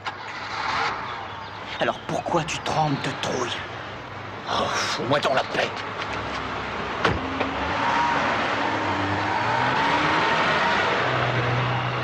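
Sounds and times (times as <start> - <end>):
car engine revving hard: 7.6 - 12.0.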